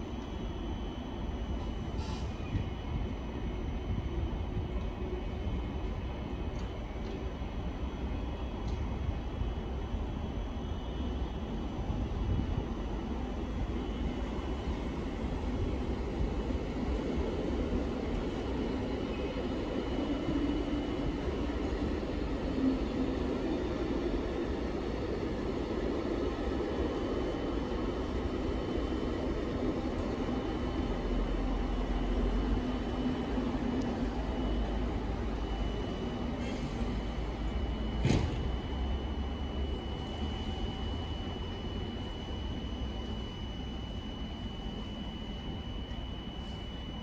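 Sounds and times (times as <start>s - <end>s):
high steady whine: 9.4s - 47.0s.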